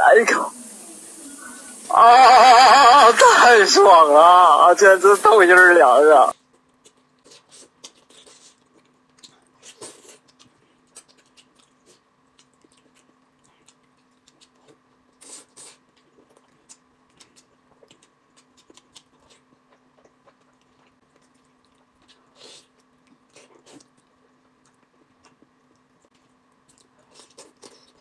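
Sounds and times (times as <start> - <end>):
faint steady hum: 0.0 - 28.0
person chewing with wet mouth smacks: 6.3 - 28.0.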